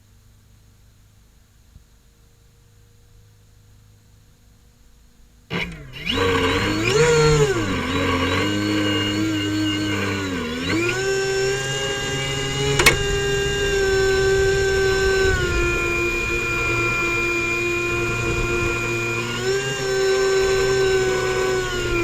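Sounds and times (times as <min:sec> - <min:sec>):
airboat engine revving: 0:05.5 - 0:22.0.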